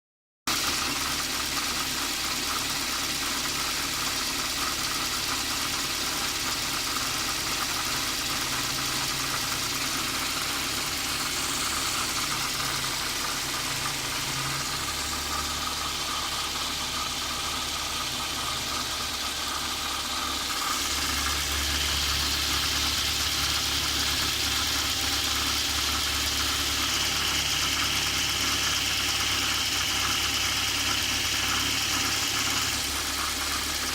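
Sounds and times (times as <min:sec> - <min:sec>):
car engine idling: 0:00.5 - 0:33.9.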